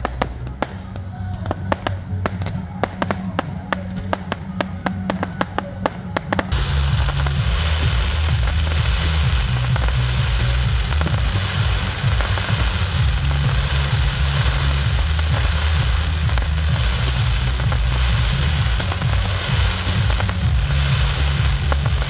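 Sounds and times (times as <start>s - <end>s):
fireworks crackling: 0.0s - 22.0s
heavy low rumble: 0.0s - 22.0s.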